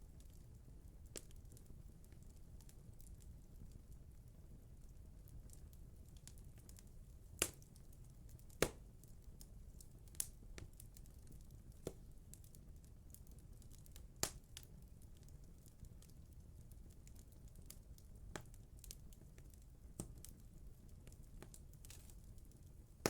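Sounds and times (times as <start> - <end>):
fire burning in fireplace: 0.0 - 23.0
sharp pops of fire: 7.4 - 7.8, 8.5 - 8.9.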